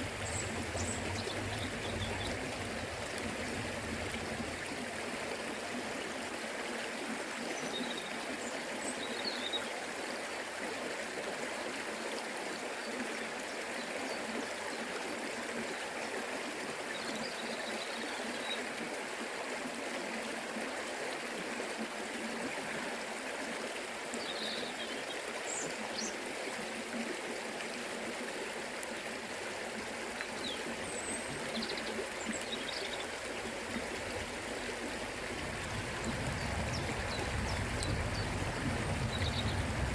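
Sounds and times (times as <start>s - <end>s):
water rushing over rocks: 0.0s - 7.4s, 28.2s - 39.9s.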